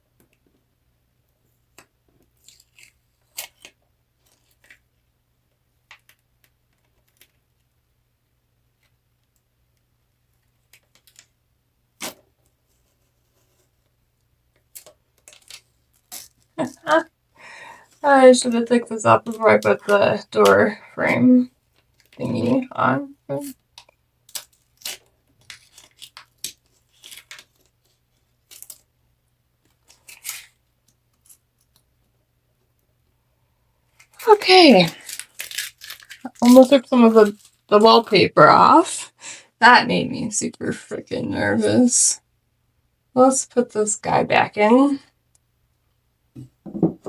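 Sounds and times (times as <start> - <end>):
small hard pieces clicking: 34.9 - 36.6.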